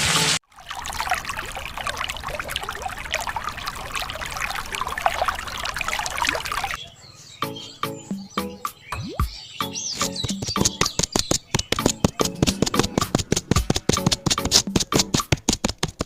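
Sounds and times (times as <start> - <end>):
water trickling and splashing: 0.0 - 6.8.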